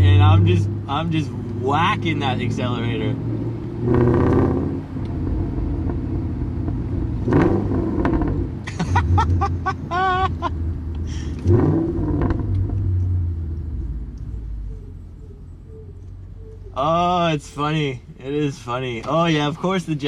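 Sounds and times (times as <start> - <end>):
engine exhaust rumbling and revving: 0.0 - 20.0
short warbling high tone: 14.6 - 17.2.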